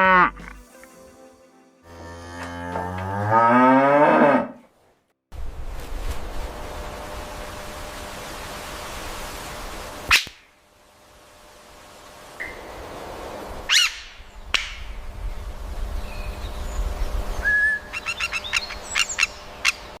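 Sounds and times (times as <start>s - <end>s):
bird chirping and whistling: 17.3s - 19.4s.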